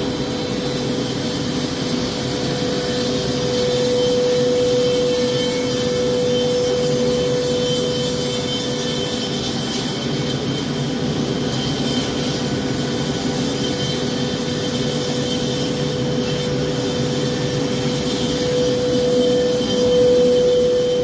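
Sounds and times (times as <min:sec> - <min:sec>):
woodworking machine motor humming: 0:00.0 - 0:10.2, 0:14.6 - 0:21.0.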